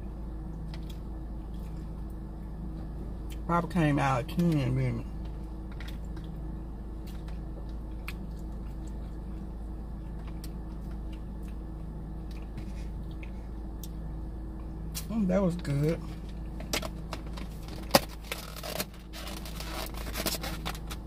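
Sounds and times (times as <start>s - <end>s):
low electrical hum: 0.0s - 21.0s
wet mouth clicks and chewing: 7.0s - 9.2s.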